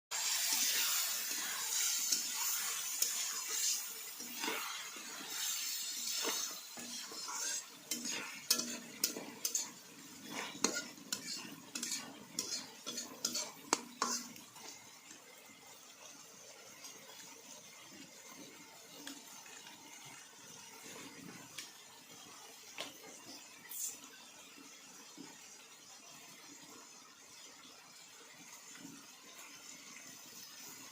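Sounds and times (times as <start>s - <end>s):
frying sizzle: 0.1s - 30.9s
metal spoon scraping a pot: 0.2s - 14.8s.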